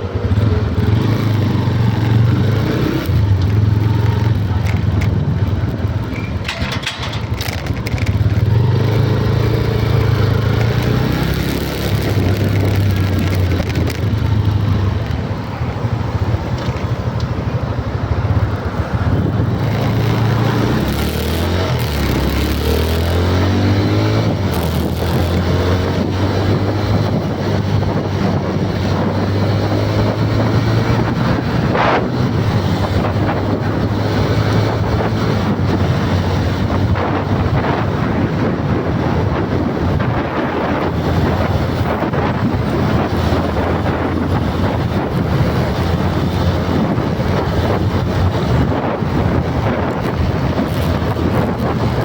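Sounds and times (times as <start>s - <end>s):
loud rumble: 0.0s - 52.0s
wind buffeting microphone: 0.0s - 52.0s.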